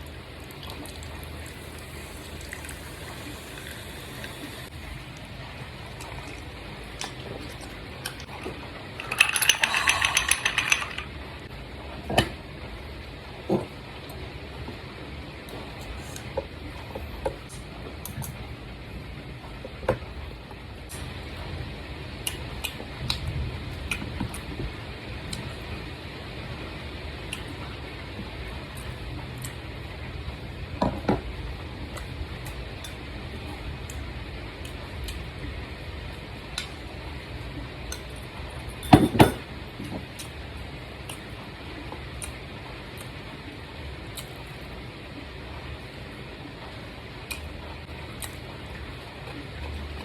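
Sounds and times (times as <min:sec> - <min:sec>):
steady low hum: 0:00.0 - 0:50.0
utensils clinking against dishes: 0:08.0 - 0:11.1, 0:38.7 - 0:39.4.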